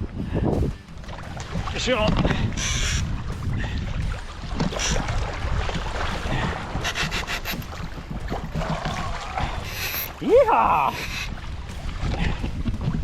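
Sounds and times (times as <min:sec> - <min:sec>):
low rumble: 0:00.0 - 0:10.3
rubbing and knocking on kayak: 0:04.0 - 0:10.2
quick clicks: 0:06.8 - 0:07.7.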